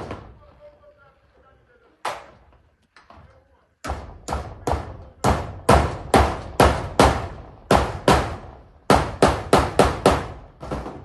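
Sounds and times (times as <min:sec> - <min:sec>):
hammer striking metal roofing: 0:03.8 - 0:11.0.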